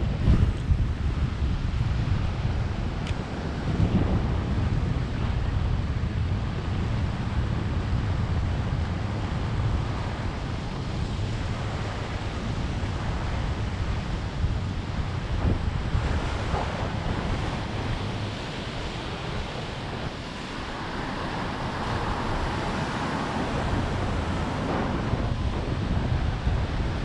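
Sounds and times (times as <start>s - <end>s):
wind buffeting microphone: 0.0s - 27.0s
ocean surf breaking: 9.1s - 27.0s.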